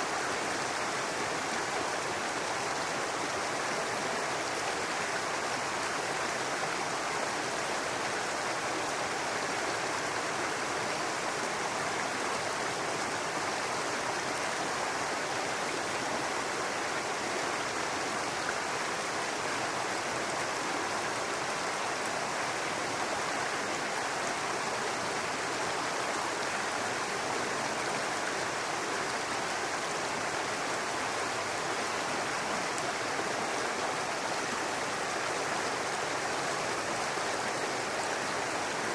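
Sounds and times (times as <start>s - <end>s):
brook water babbling over rocks: 0.0s - 38.9s.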